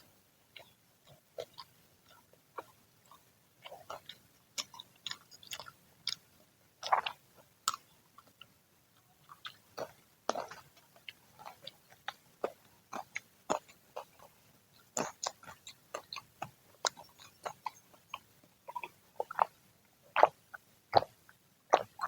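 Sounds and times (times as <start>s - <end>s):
crunching fried fritters: 0.5s - 22.0s
mouth clicks: 20.2s - 22.0s.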